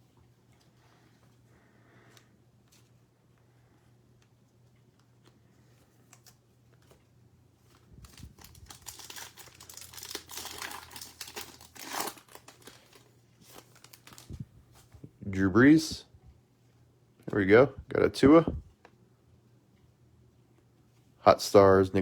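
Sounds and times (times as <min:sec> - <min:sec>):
card pack wrapper crinkling and tearing: 0:07.6 - 0:14.4.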